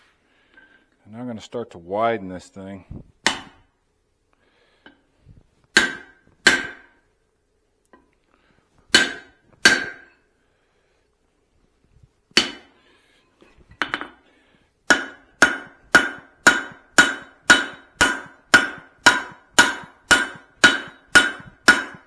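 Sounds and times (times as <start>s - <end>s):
hammer ringing on hot steel: 5.8s - 6.9s, 9.0s - 10.2s, 12.4s - 12.7s, 14.9s - 22.0s.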